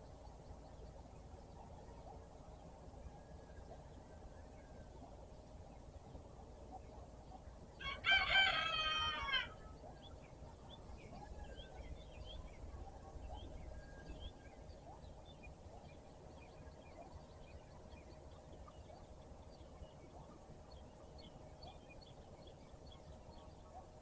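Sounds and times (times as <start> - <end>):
small birds chirping: 0.0 - 24.0
rooster crowing: 7.8 - 9.6.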